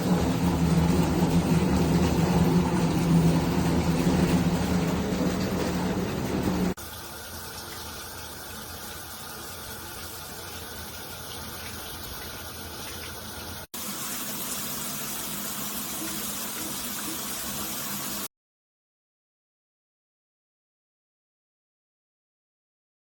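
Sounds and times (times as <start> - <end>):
water streaming from shower head: 0.0 - 18.3.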